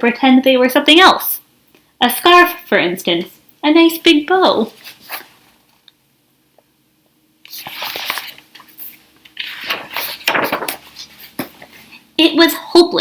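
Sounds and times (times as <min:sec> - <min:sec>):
book pages rustling: 0:04.6 - 0:05.8, 0:07.4 - 0:12.1.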